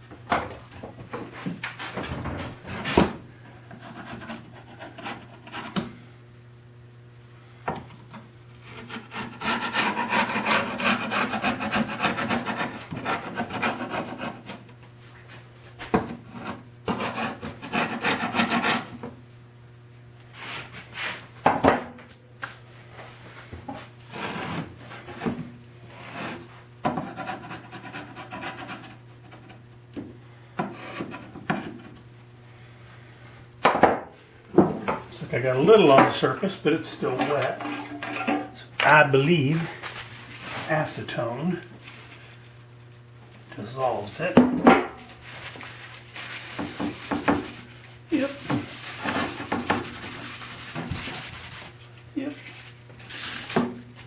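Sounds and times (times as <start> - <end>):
steady low hum: 0.0 - 54.0
knocks and clicks handling wood: 0.1 - 1.3
rubbing and scraping on wood: 3.7 - 6.0, 8.6 - 14.6, 15.9 - 19.0, 23.7 - 29.6, 30.6 - 32.0, 34.8 - 42.5, 45.0 - 53.8.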